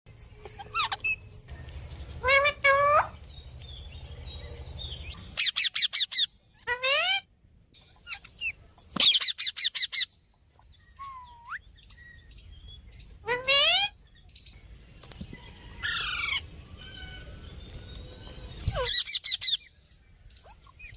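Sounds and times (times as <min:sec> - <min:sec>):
parrot squawking and shrieking: 0:00.4 - 0:01.4, 0:02.2 - 0:03.2, 0:05.4 - 0:07.3, 0:08.0 - 0:10.2, 0:13.2 - 0:14.0, 0:15.8 - 0:17.4, 0:18.6 - 0:19.7.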